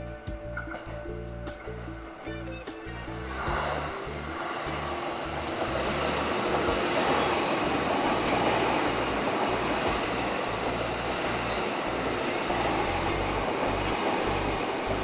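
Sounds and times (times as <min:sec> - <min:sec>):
electric train running past: 0:00.0 - 0:15.0.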